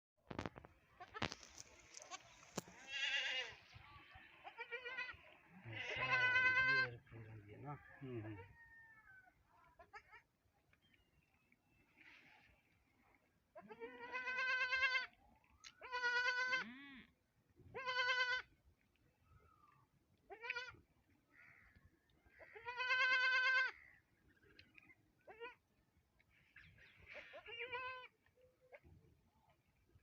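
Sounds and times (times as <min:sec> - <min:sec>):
goat bleating: 0:01.0 - 0:03.6, 0:04.4 - 0:07.0, 0:13.6 - 0:15.2, 0:15.8 - 0:17.1, 0:17.7 - 0:18.5, 0:20.3 - 0:20.8, 0:22.4 - 0:23.8, 0:27.2 - 0:28.1.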